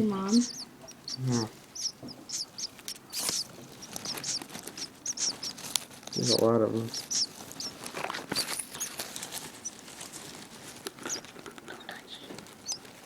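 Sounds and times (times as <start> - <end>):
soft rustling: 0.0 - 13.0
high bird chirps: 0.1 - 9.0, 12.6 - 12.8.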